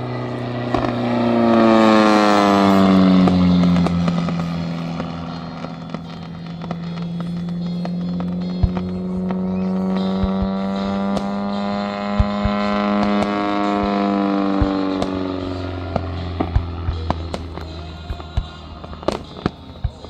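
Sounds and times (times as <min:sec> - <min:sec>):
motor or propeller hum: 0:00.0 - 0:20.0
firework pops: 0:02.7 - 0:15.2.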